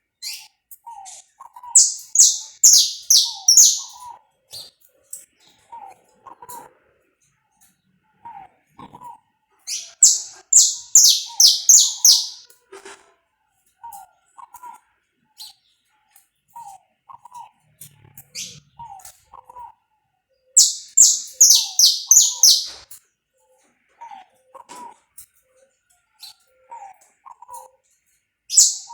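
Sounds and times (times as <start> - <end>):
finch singing high notes: 1.8 - 4.0, 9.7 - 12.4, 20.6 - 22.8, 28.5 - 28.9.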